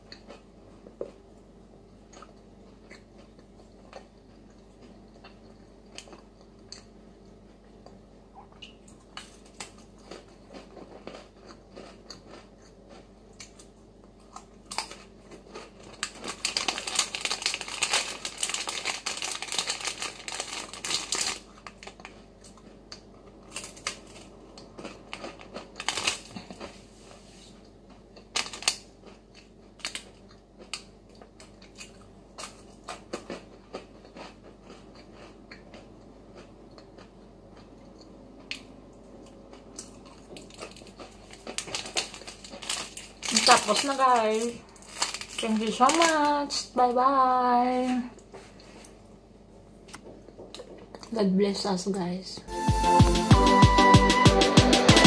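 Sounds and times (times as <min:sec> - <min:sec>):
crackers crunching while chewed: 0:00.0 - 0:01.2, 0:02.0 - 0:46.7, 0:49.9 - 0:51.2
plastic wrapper crinkling: 0:14.7 - 0:22.2, 0:23.5 - 0:26.8, 0:28.3 - 0:28.8, 0:39.8 - 0:46.7.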